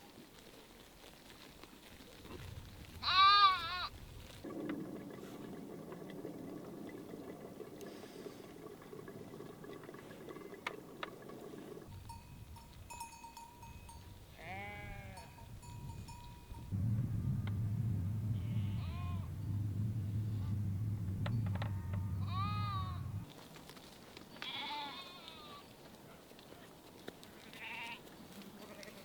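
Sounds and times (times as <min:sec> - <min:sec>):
animal bleating: 0:03.0 - 0:03.9, 0:14.4 - 0:15.3, 0:17.9 - 0:23.2, 0:24.4 - 0:25.6, 0:27.5 - 0:29.0.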